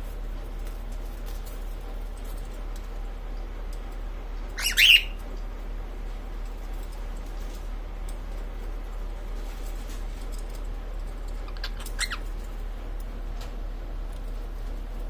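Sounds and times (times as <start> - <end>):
steady low hum: 0.0 - 15.0
cockatiel squawk: 4.6 - 5.2, 11.5 - 12.2.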